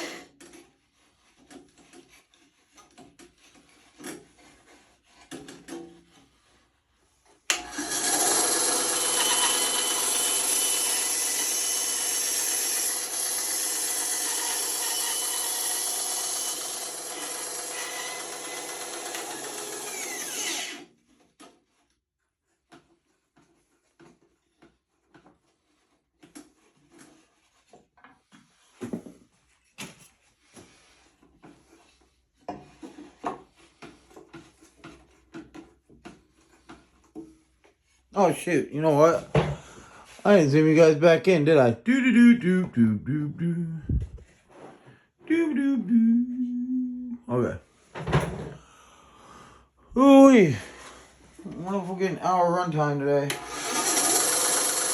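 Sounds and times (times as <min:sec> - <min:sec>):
power tool rasping wood: 0:00.0 - 0:00.4, 0:07.5 - 0:21.0, 0:52.9 - 0:54.9.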